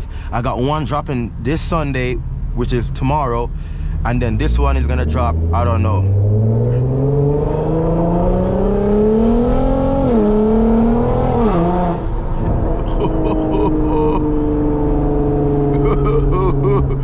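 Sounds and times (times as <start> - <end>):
car engine and exhaust accelerating: 0.0 - 17.0.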